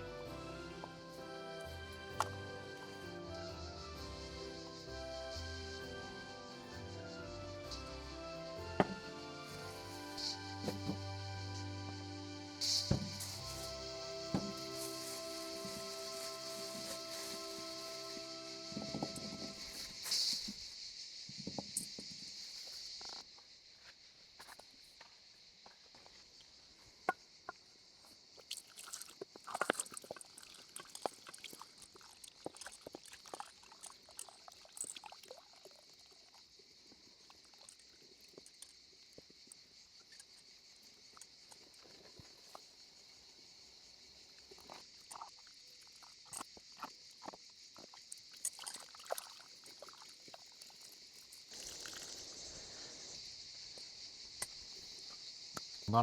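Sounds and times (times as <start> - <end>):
insects chorus: 0.0 - 56.0
rustling: 12.7 - 18.3.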